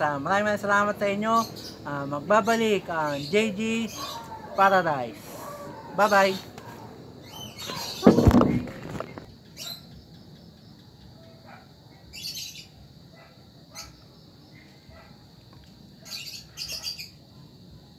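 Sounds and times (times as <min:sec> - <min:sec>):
birds chirping: 0:00.0 - 0:10.0, 0:16.0 - 0:17.2.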